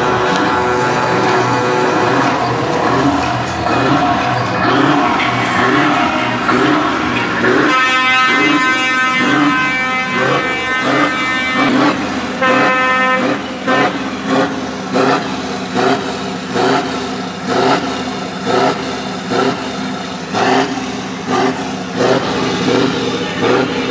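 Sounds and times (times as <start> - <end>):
short truck horn honks: 0.0 - 15.4
truck air horn blast: 0.0 - 17.6.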